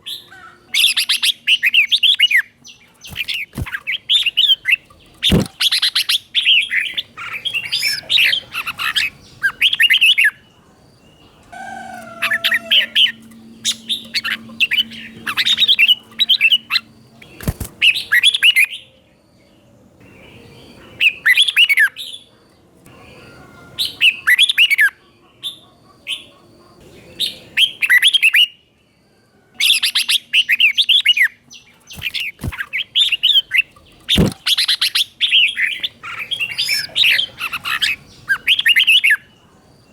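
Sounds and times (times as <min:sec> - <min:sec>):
bird singing warbling notes: 0:11.2 - 0:18.9.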